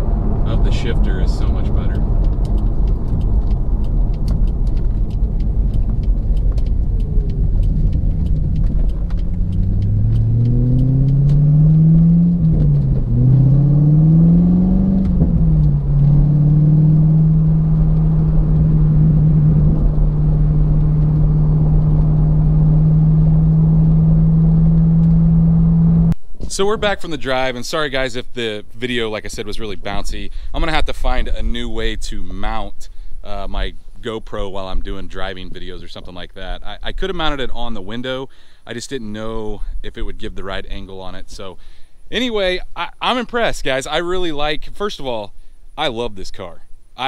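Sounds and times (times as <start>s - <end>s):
car engine accelerating: 0.0s - 27.2s
road rumble: 0.0s - 47.0s
light ticks: 1.9s - 11.8s.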